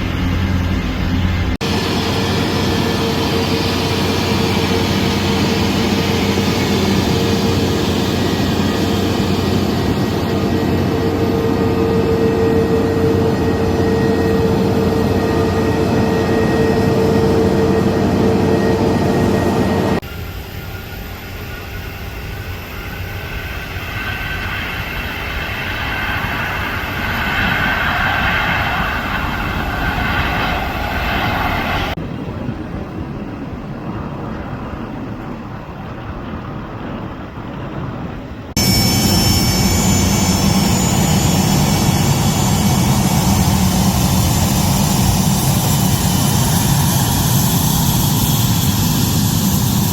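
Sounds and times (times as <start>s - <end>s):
jet engines running: 0.0s - 49.9s.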